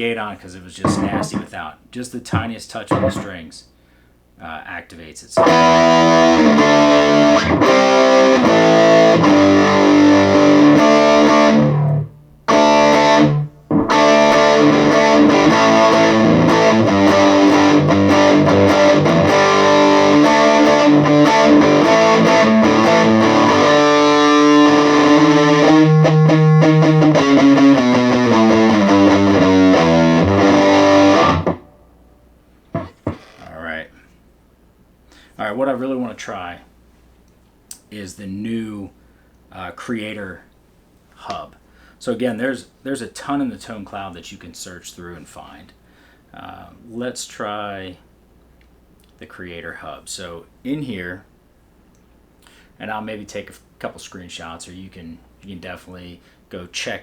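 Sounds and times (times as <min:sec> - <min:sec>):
distorted electric guitar: 0:00.8 - 0:01.5, 0:02.9 - 0:03.3, 0:05.4 - 0:31.9, 0:32.8 - 0:33.5.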